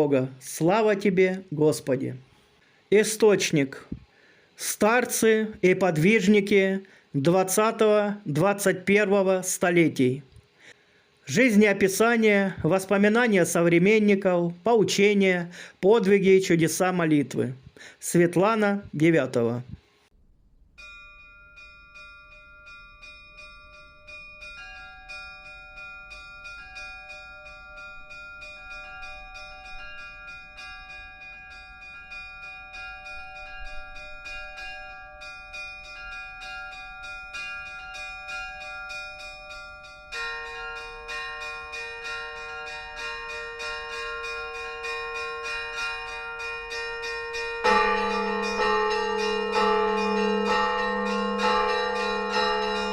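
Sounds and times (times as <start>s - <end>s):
church bells ringing: 20.8s - 52.9s
lower bell ringing: 20.8s - 52.9s.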